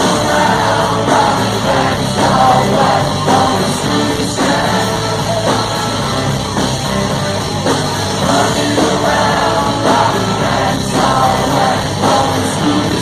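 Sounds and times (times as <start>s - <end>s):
live rock band playing: 0.0s - 13.0s
person singing: 8.2s - 13.0s.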